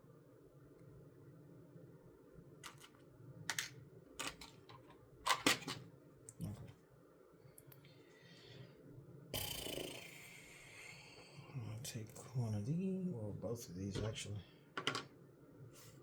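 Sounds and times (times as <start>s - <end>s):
plastic bricks clicking together: 2.6s - 2.9s, 3.5s - 5.7s.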